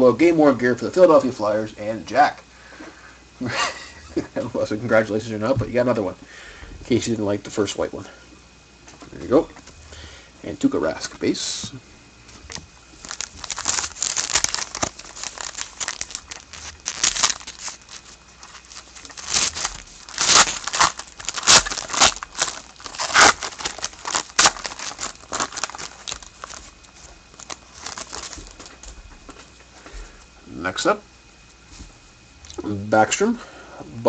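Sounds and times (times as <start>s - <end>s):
wrapper crinkling and tearing: 12.5s - 28.8s.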